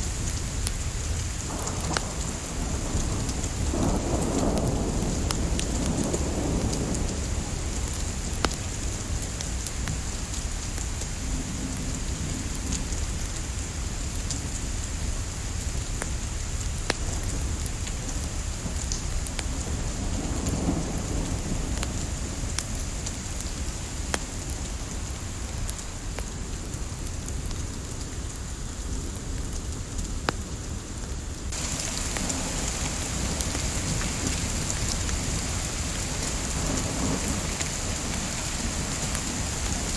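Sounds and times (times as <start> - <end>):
light rain hiss: 0.0 - 39.9
wood fire crackling and popping: 0.2 - 7.0, 7.7 - 11.1, 15.7 - 19.6, 20.2 - 39.9.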